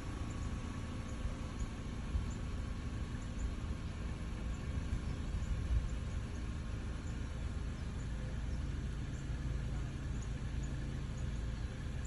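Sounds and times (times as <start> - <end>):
low uneven rumble: 0.0 - 12.0.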